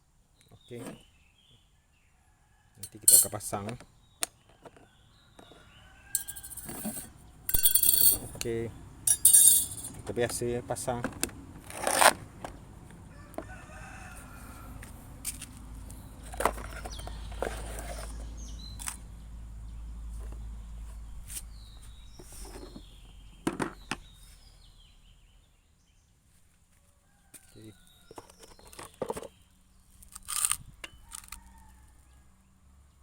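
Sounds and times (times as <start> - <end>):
clicks and knocks of tool parts: 2.8 - 4.8, 6.2 - 8.5, 11.0 - 12.6, 28.1 - 29.3, 30.0 - 31.4
rooster crowing: 5.5 - 7.1, 13.1 - 15.0, 31.0 - 32.3.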